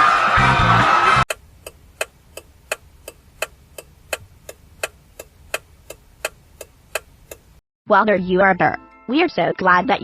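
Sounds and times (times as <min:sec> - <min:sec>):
clock ticking: 0:01.3 - 0:07.6.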